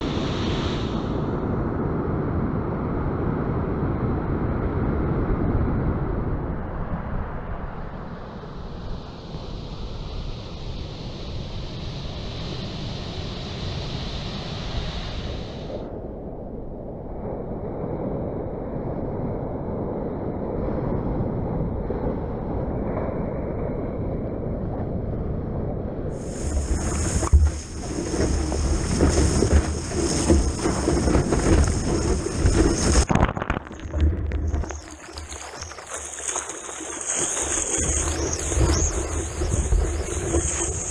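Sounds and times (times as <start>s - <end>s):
ocean surf: 0.0s - 19.0s, 20.5s - 40.9s
wind noise on microphone: 16.9s - 40.9s.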